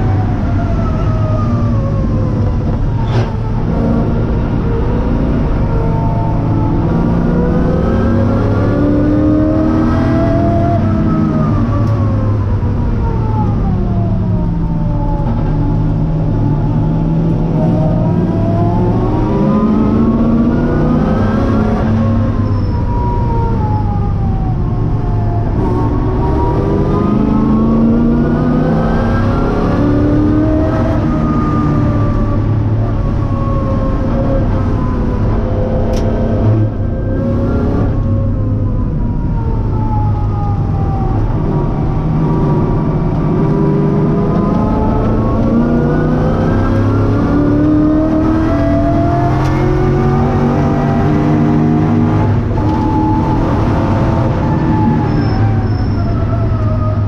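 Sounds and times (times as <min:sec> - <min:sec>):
race car engine revving: 0:25.2 - 0:38.4, 0:41.0 - 0:57.0.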